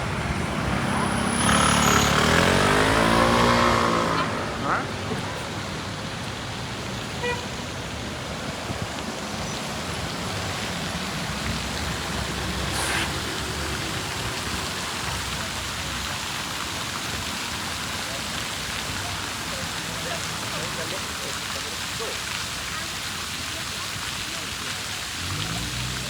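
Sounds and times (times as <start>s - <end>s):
passing road traffic: 0.0s - 26.0s
brief hiss: 12.7s - 13.2s.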